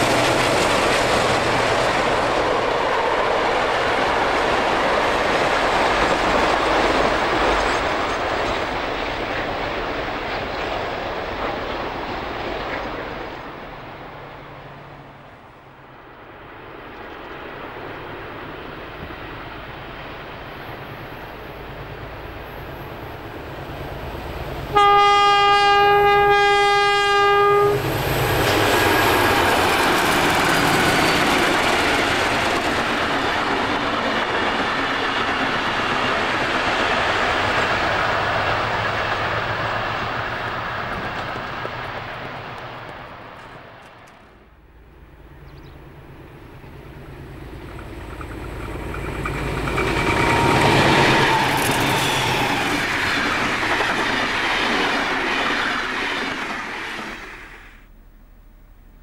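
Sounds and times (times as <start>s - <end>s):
diesel train passing loudly: 0.0s - 57.9s
locomotive horn blast: 24.7s - 27.9s.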